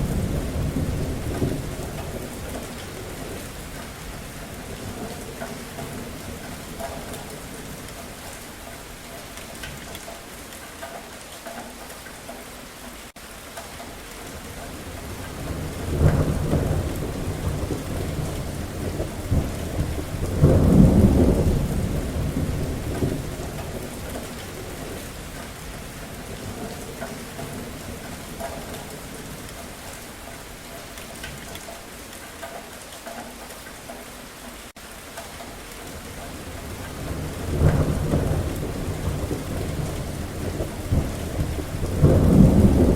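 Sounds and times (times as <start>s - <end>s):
long rumble of thunder: 0.0s - 8.0s, 14.4s - 29.8s, 35.9s - 42.9s
steady rain falling: 0.0s - 42.9s.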